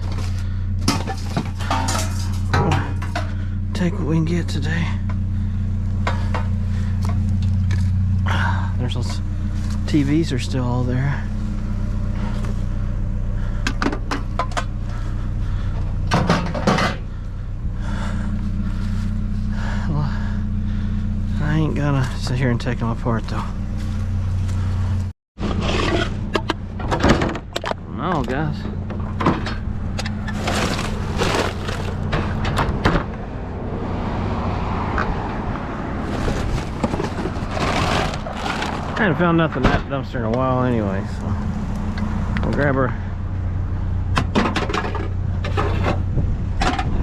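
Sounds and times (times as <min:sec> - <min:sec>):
knocks and rattles of handling: 0:00.0 - 0:03.5, 0:36.1 - 0:39.0, 0:44.2 - 0:47.0
junk clinking in a dumpster: 0:00.0 - 0:03.6, 0:15.8 - 0:17.2, 0:25.6 - 0:33.1, 0:36.0 - 0:40.1
rattling clatter of junk: 0:00.0 - 0:10.4, 0:13.4 - 0:20.2, 0:25.4 - 0:33.2, 0:36.0 - 0:41.1, 0:44.1 - 0:47.0
low engine hum: 0:00.0 - 0:47.0.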